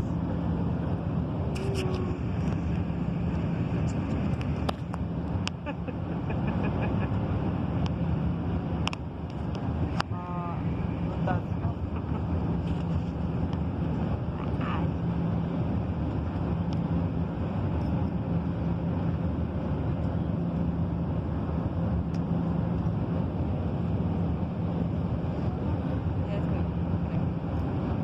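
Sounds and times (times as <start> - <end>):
airliner engines roaring: 0.0 - 28.0
low hum: 0.0 - 28.0.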